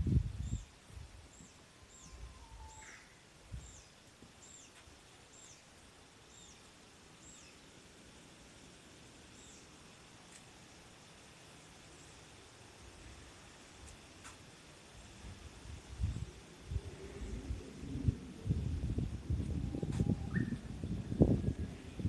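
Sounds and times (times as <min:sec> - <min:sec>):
small bird chirping: 0:00.3 - 0:05.7, 0:06.3 - 0:07.8, 0:19.8 - 0:21.0
low rumble: 0:16.1 - 0:22.0.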